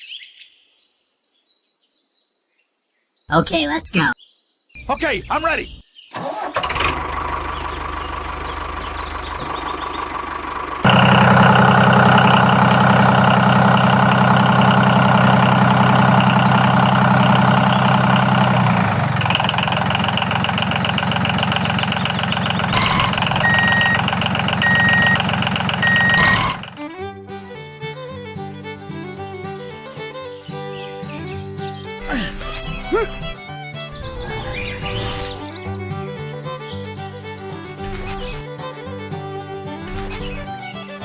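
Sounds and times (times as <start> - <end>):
small engine running: 6.2 - 41.0
short beeps: 22.7 - 26.6.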